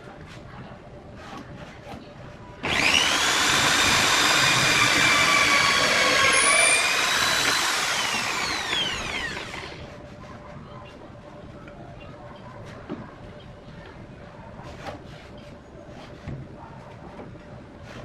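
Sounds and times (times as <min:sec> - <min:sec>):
power tool motor whining: 0:02.6 - 0:09.9.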